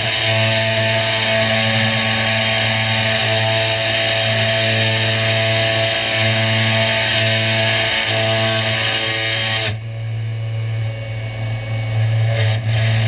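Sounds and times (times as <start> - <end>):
guitar music: 0.0 - 9.8, 12.3 - 13.0.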